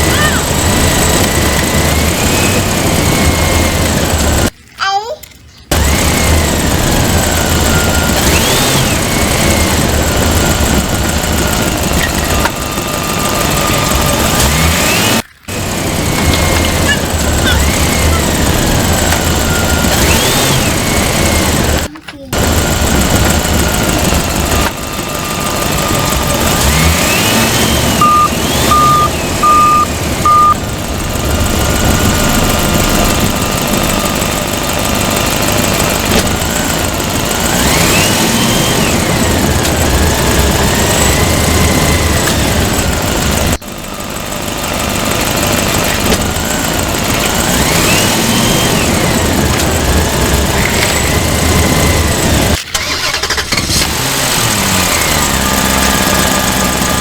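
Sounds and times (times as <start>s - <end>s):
toy engine rumble sound effect: 0.0s - 57.0s
short electronic beeps: 28.0s - 30.6s.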